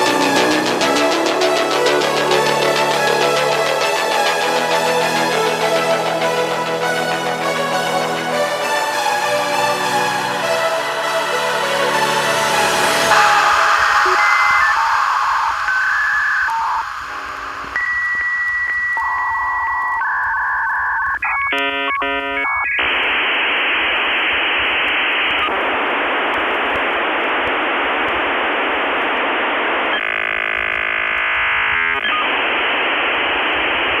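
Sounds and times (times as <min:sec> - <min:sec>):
rapid modem warbling: 0:00.0 - 0:09.1, 0:09.8 - 0:34.0
harsh hissing static: 0:00.0 - 0:34.0
modem tones changing pitch: 0:12.7 - 0:25.6, 0:29.5 - 0:34.0.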